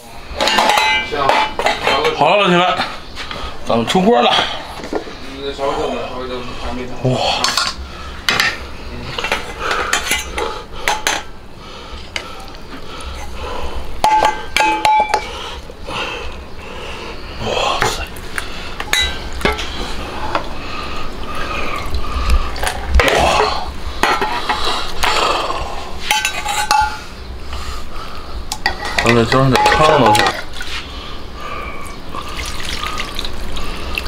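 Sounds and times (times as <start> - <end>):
metal ladle clanking on pot: 0.4 - 2.1, 14.0 - 15.3, 18.8 - 19.7, 23.0 - 25.2, 26.1 - 27.0, 28.5 - 30.5.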